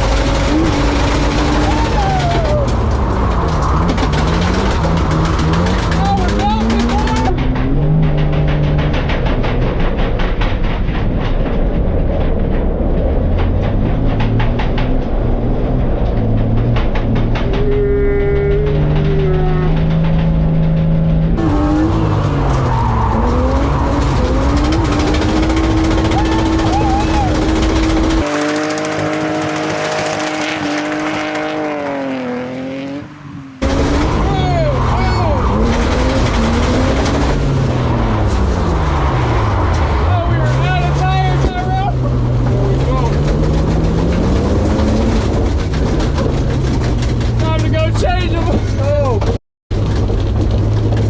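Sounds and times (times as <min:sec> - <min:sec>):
tires squealing: 0:00.0 - 0:10.4, 0:12.9 - 0:49.4
loud low rumble: 0:00.0 - 0:28.2
car engine running: 0:00.0 - 0:51.0.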